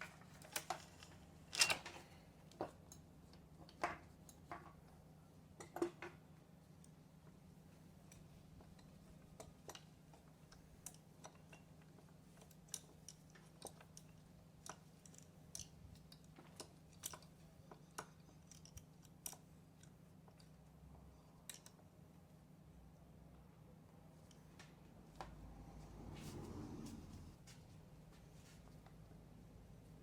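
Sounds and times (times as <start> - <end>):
steady low hum: 22.2 - 30.0.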